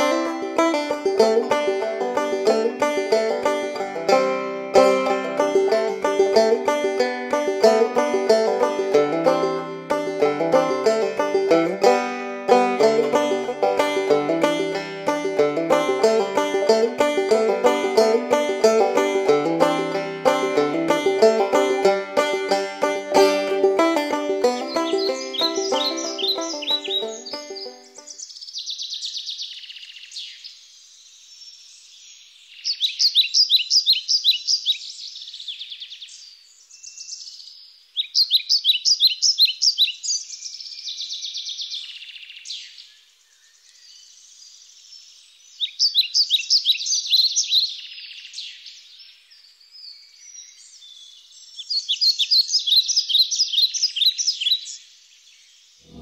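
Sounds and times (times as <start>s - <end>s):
bird chirps and twitters: 24.5s - 30.4s, 32.5s - 36.2s, 38.0s - 43.8s, 45.6s - 48.9s, 49.9s - 54.8s
songbird trilling: 24.6s - 29.8s, 32.5s - 34.8s, 38.0s - 40.3s, 45.6s - 48.2s.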